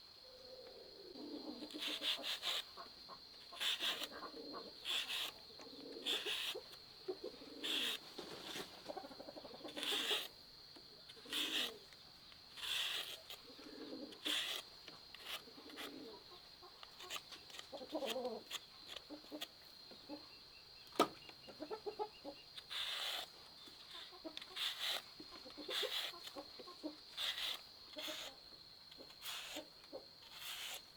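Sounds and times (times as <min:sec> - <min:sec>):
chickens clucking: 0:06.6 - 0:10.2, 0:15.5 - 0:22.5, 0:23.9 - 0:27.1.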